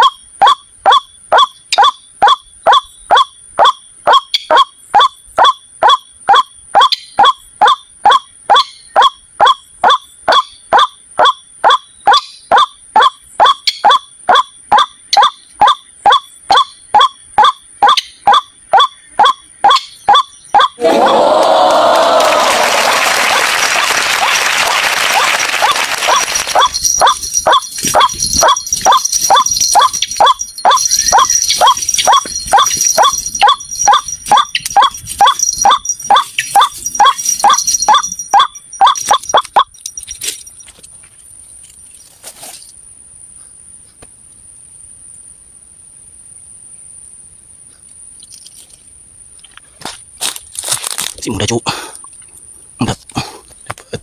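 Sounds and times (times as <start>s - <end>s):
waterhen calls: 0.0s - 21.1s, 24.2s - 39.7s.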